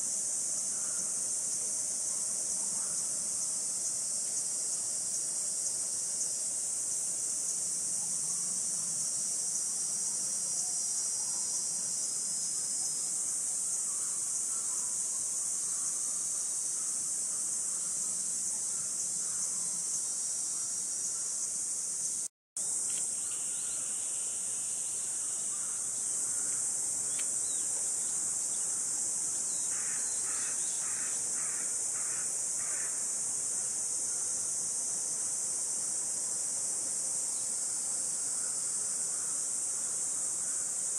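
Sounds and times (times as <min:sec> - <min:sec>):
cicada chorus drone: 0:00.0 - 0:40.9.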